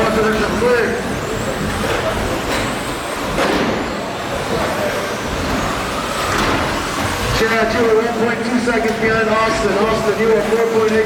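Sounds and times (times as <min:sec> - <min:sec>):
rc truck motor whine: 0:00.0 - 0:08.7.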